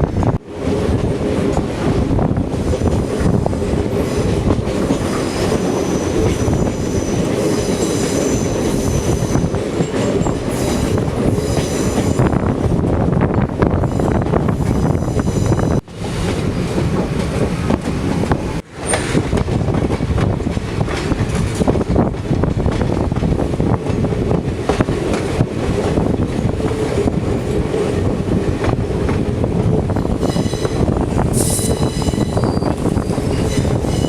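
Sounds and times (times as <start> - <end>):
wheels rumbling on rail: 0.0 - 34.0
light wheel squeal: 31.4 - 34.0.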